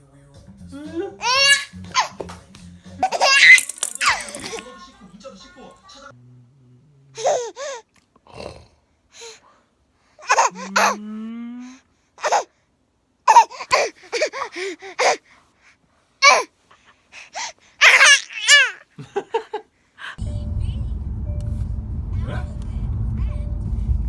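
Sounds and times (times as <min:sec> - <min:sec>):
lower voice: 0:00.0 - 0:03.1, 0:06.0 - 0:07.2, 0:10.5 - 0:11.8, 0:20.2 - 0:24.0
baby laughing and squealing: 0:01.0 - 0:02.2, 0:03.0 - 0:04.6, 0:12.2 - 0:12.5, 0:13.3 - 0:15.2, 0:16.2 - 0:16.5, 0:17.4 - 0:18.9
baby gasping breaths: 0:13.3 - 0:18.0.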